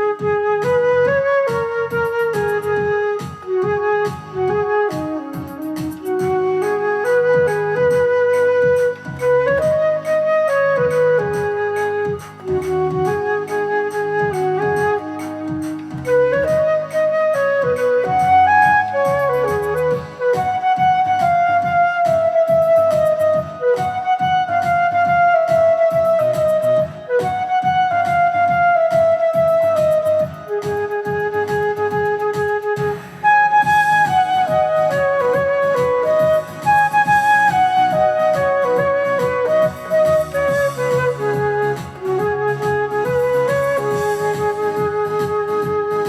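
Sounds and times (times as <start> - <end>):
flute playing melody: 0.0 - 46.0
karaoke backing track with beat: 0.0 - 46.0.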